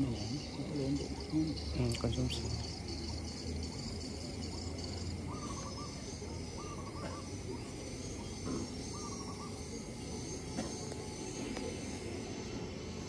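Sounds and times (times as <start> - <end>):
bird warbling call: 4.4 - 9.9.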